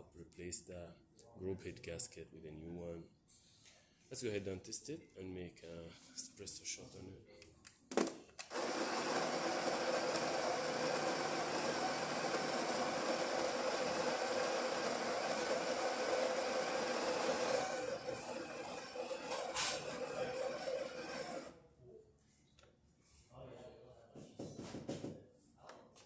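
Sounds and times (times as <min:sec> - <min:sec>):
coffee grinder whirring: 0:08.4 - 0:21.5.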